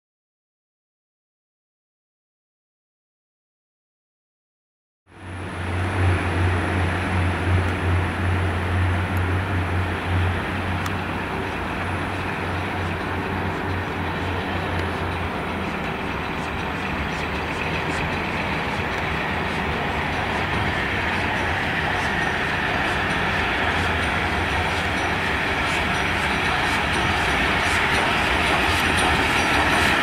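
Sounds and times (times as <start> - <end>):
diesel train engines running: 5.1 - 30.0
steam locomotive rumble and hiss: 5.1 - 30.0
wheels clicking over rail joints: 7.0 - 30.0.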